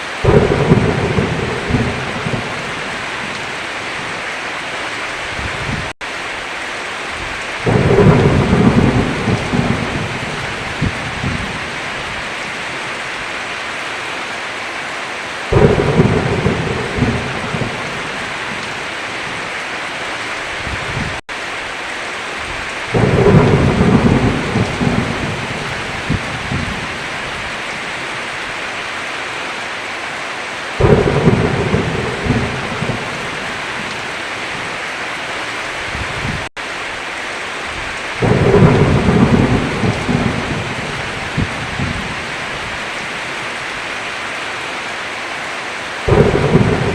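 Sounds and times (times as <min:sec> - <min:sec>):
heavy rain: 0:00.0 - 0:46.9
thunder rumbling: 0:00.2 - 0:04.2, 0:07.2 - 0:12.8, 0:15.5 - 0:19.5, 0:22.4 - 0:27.9, 0:30.8 - 0:34.8, 0:37.7 - 0:43.1, 0:46.1 - 0:46.9.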